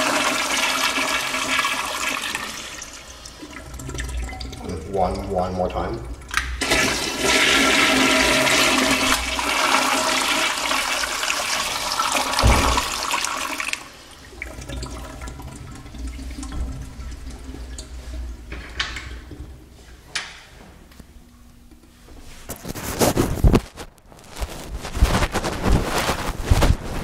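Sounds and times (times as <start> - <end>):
toilet flushing water rush: 0.0 - 19.4
low thump: 12.4 - 13.0.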